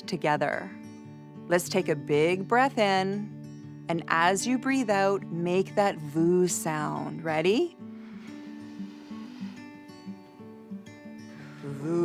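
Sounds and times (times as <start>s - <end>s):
plucked acoustic guitar music: 0.0s - 12.0s
person humming low: 11.5s - 12.0s.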